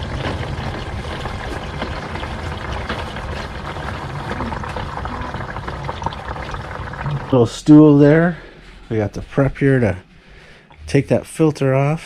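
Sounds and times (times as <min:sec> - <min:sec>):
oil pouring into bucket: 0:00.0 - 0:07.4.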